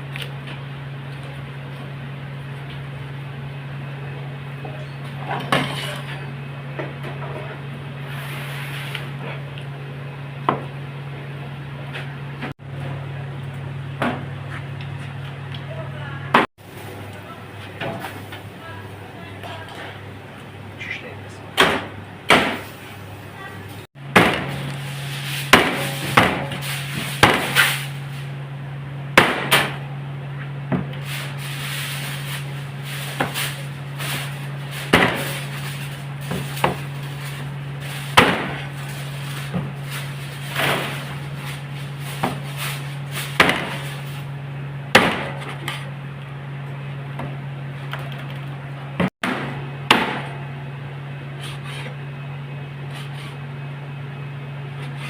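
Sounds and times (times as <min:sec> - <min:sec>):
steady low hum: 0:00.0 - 0:55.0
objects knocking and scraping: 0:32.0 - 0:44.3.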